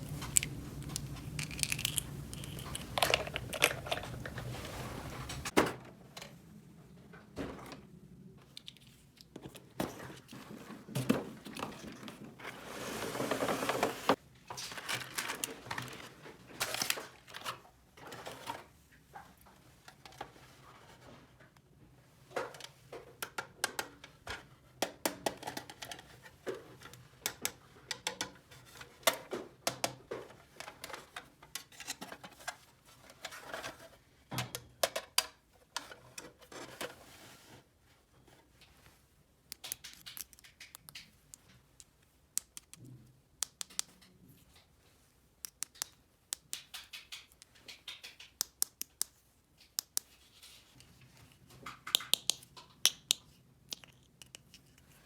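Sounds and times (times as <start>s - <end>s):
plastic toy pieces clicking: 0.1s - 4.3s, 39.5s - 42.8s, 43.4s - 44.0s, 45.5s - 49.1s, 51.9s - 54.8s.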